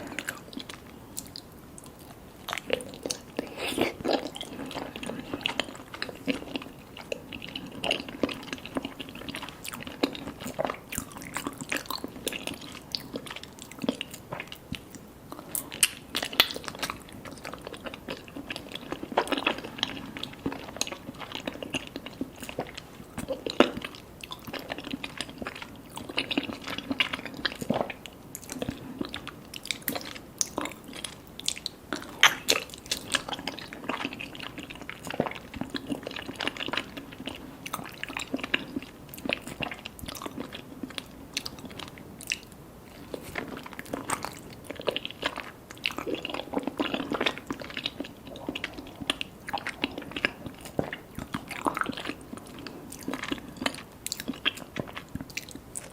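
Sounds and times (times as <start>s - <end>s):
wet chewing and smacking: 0.0s - 55.9s.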